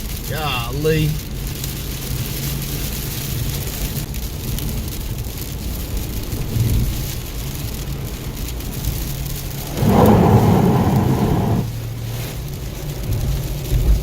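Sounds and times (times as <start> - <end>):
heavy rain pouring: 0.0 - 14.0
low rumble: 9.4 - 12.0.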